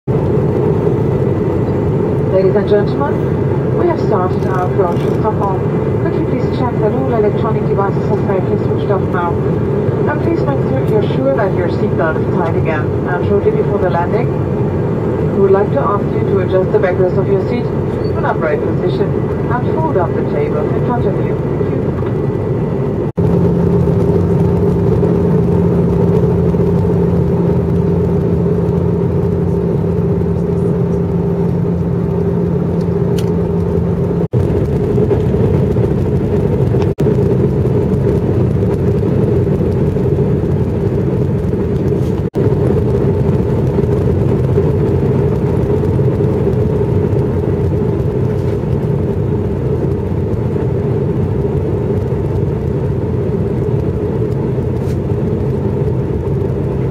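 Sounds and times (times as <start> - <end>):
jet airliner cabin roar: 0.1 - 56.9
low hum: 0.1 - 56.9.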